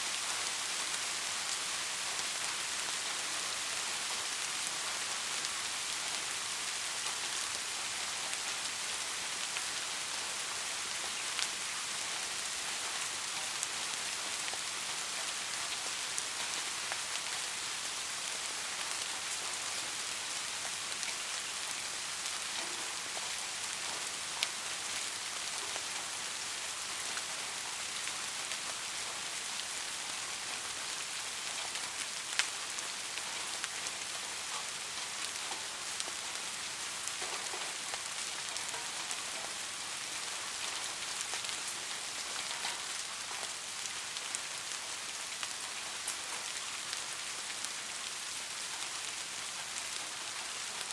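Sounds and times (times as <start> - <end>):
steady rain hiss: 0.0 - 50.9
raindrop ticks: 40.6 - 43.5.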